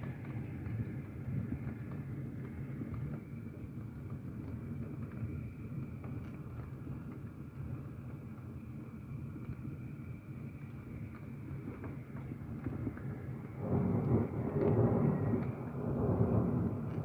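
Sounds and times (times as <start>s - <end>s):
heavy rain through window: 0.0s - 17.0s.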